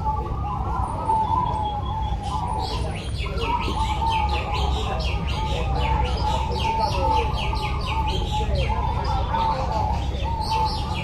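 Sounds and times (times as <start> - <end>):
doves cooing: 0.0 - 11.0.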